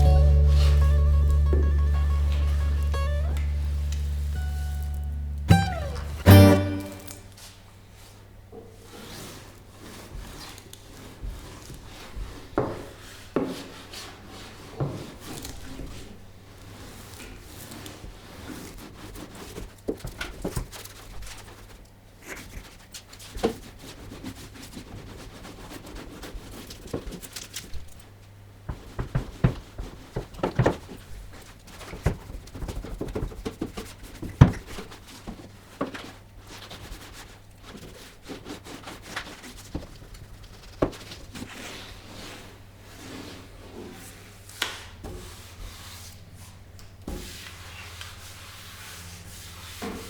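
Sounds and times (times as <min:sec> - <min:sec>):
faint steady hum: 0:00.0 - 0:06.4.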